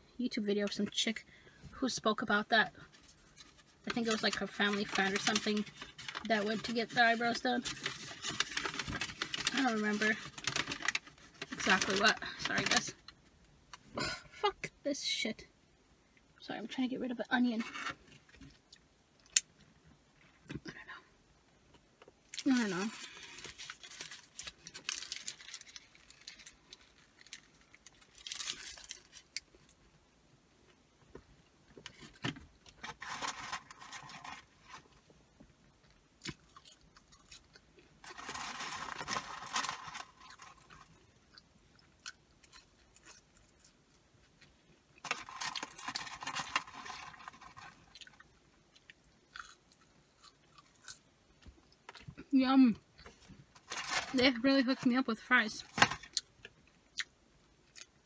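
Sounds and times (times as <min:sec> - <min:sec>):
person chewing food: 0:47.9 - 0:51.0.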